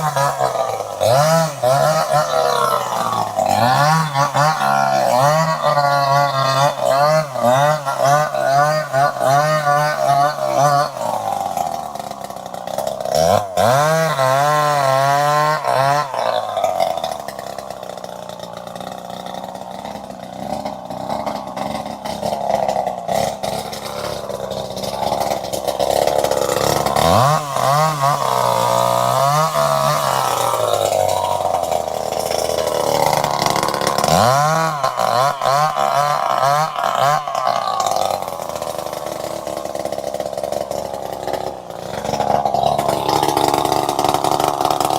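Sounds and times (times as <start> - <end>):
chainsaw engine revving: 0.0 - 44.9.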